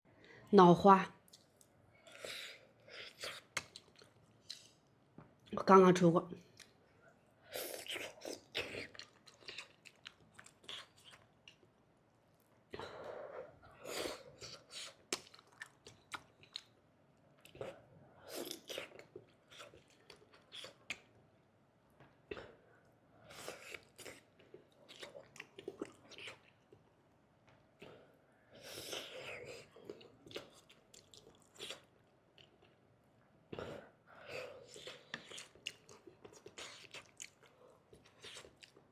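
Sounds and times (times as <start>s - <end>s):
person chewing: 1.3s - 4.8s, 7.5s - 11.7s, 13.2s - 16.8s, 17.4s - 21.1s, 23.3s - 26.8s, 28.7s - 32.8s, 34.3s - 38.9s.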